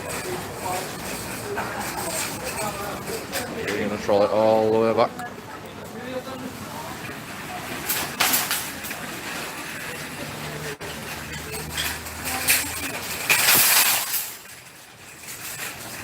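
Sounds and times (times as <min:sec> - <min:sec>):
metal trolleys crashing: 0:00.0 - 0:04.4, 0:06.9 - 0:16.0
shopping trolley rattling: 0:00.0 - 0:05.1, 0:06.0 - 0:16.0.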